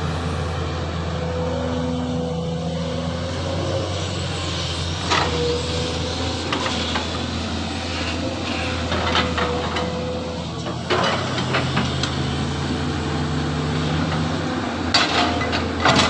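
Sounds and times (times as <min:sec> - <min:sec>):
excavator engine drone: 0:00.0 - 0:16.0.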